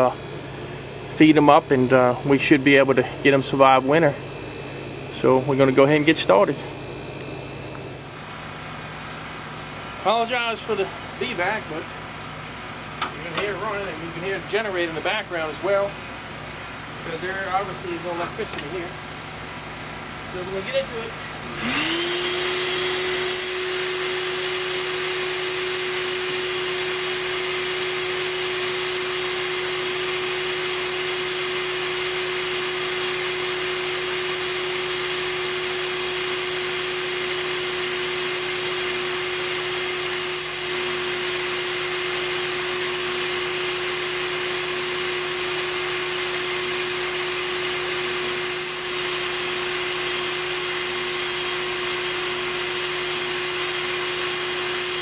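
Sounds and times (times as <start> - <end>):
generator humming: 0.0 - 55.0
vacuum motor whine: 0.0 - 55.0.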